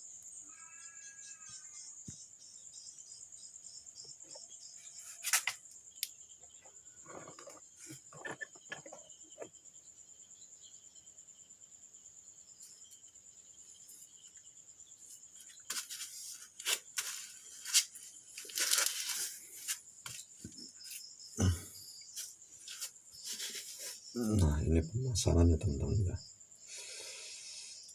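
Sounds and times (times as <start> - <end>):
crickets chirring: 0.0 - 27.9
parts rustling and scraping: 4.3 - 5.7, 7.0 - 9.6, 15.0 - 21.1, 22.0 - 24.1.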